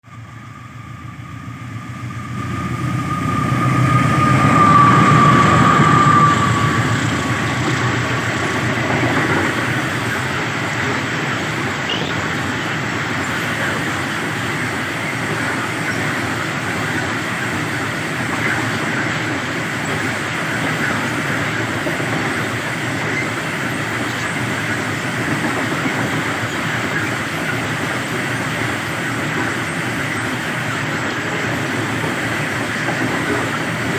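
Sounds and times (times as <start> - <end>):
locomotive engine rumble: 0.1 - 22.4
train wagons rolling past: 0.3 - 33.9.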